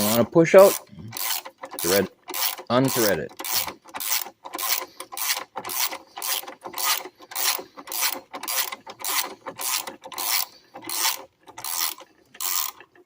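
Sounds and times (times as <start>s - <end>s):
ratchet wrench rasping: 0.0s - 13.0s.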